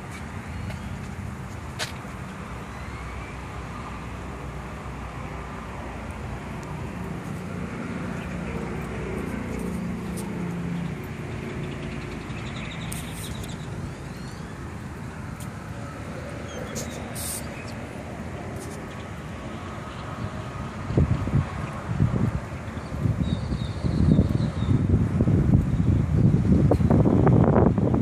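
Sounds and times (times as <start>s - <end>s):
low rumble of traffic: 0.0s - 28.0s
vehicle engine passing: 4.9s - 22.3s.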